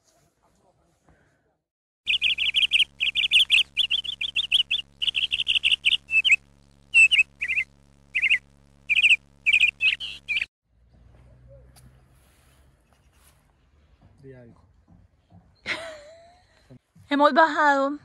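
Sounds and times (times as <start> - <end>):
songbird chirping: 2.1 - 10.5.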